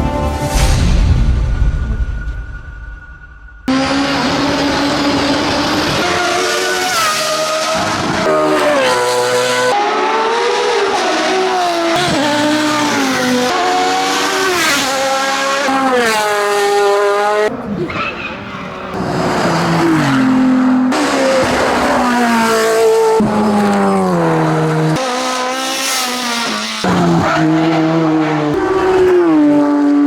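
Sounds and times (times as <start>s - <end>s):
race car engines at full throttle: 3.6s - 30.0s.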